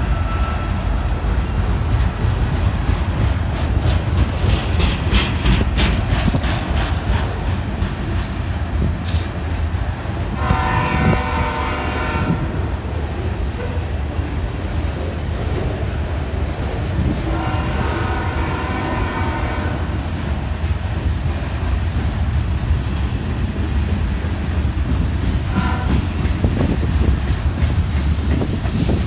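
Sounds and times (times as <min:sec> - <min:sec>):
train rumbling past: 0:00.0 - 0:29.0
wheels clicking over rail joints: 0:01.6 - 0:10.6, 0:20.0 - 0:29.0
locomotive air horn blasts: 0:10.3 - 0:12.7, 0:17.2 - 0:20.0, 0:25.5 - 0:26.1.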